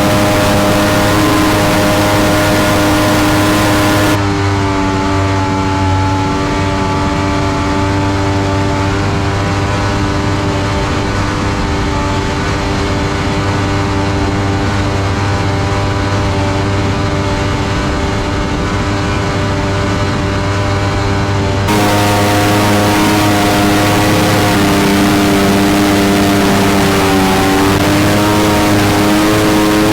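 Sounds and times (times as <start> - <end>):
jet boat engine running: 0.0 - 4.2, 21.7 - 29.9.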